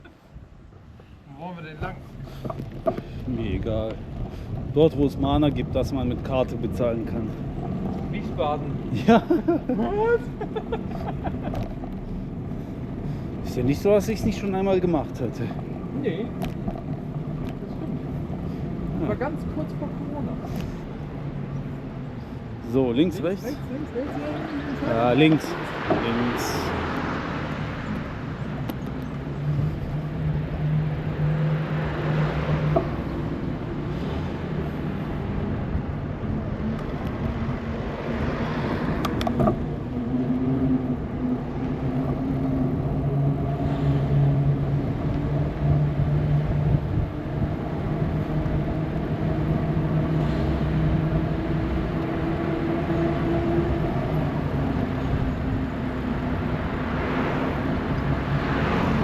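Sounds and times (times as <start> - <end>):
bicycle tyres rolling on path: 1.8 - 59.0
wind rushing over microphone: 11.5 - 59.0.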